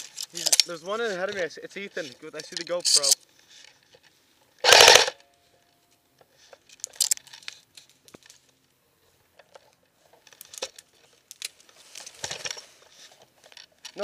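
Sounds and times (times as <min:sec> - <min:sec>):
rustling through leaf litter: 0:11.1 - 0:13.1.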